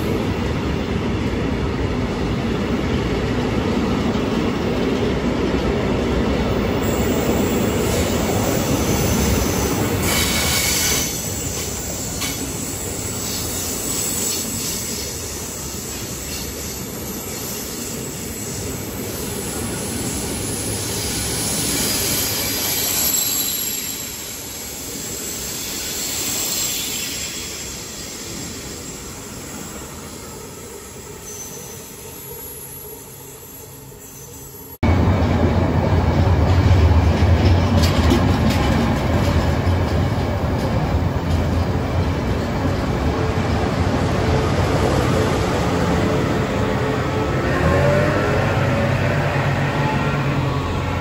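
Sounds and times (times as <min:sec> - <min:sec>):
freight train wagons rolling: 0:34.9 - 0:43.9.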